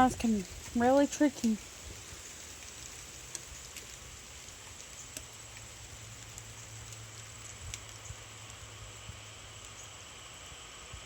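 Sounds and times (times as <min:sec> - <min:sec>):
light rain hissing: 0:00.0 - 0:11.0
drops ticking: 0:02.5 - 0:08.6.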